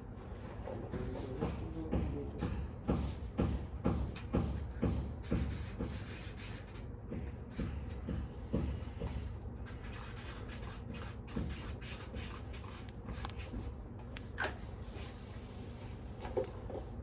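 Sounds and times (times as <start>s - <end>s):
rubbing and scuffing: 7.6s - 16.9s.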